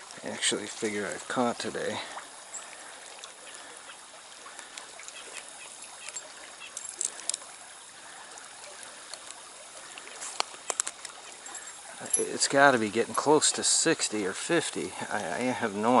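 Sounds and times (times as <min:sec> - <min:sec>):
stream water trickling: 0:00.0 - 0:16.0.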